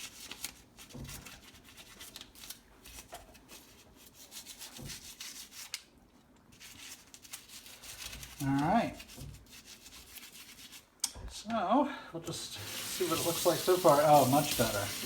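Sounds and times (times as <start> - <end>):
toothbrush scrubbing metal: 2.9 - 5.9, 6.5 - 10.9, 12.6 - 15.0.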